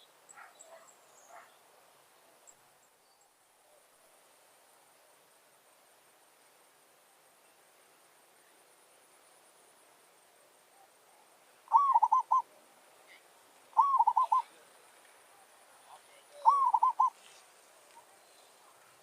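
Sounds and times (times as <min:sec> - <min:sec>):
dove cooing: 0:10.8 - 0:12.6, 0:13.7 - 0:14.6, 0:16.3 - 0:17.2.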